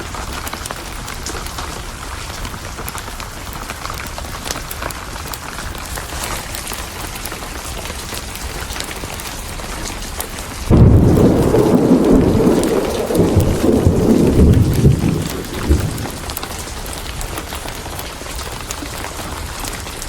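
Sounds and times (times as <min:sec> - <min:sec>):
steady rain: 0:00.0 - 0:20.0
thunderclap rumbling: 0:10.7 - 0:18.6.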